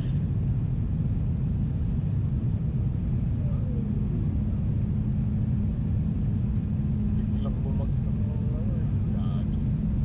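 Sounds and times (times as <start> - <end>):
airplane cabin rumble: 0.0 - 10.0
steady low hum: 0.0 - 10.0.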